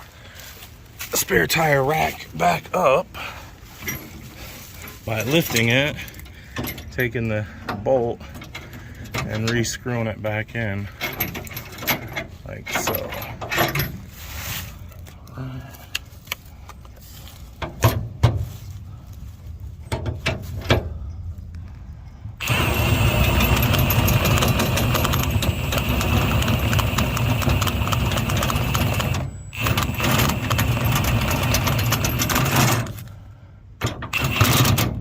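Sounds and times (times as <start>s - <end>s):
impact wrench hammering: 22.4s - 32.8s.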